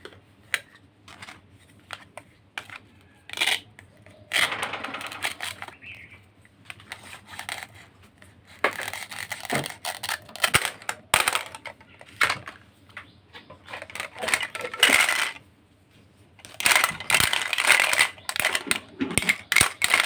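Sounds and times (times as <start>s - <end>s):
plastic pieces rattling and scraping: 0.5s - 12.7s, 13.6s - 15.4s, 16.4s - 20.0s
plastic toy pieces clicking: 2.6s - 5.9s, 6.7s - 7.8s, 8.5s - 12.6s, 13.7s - 15.4s, 16.4s - 20.0s.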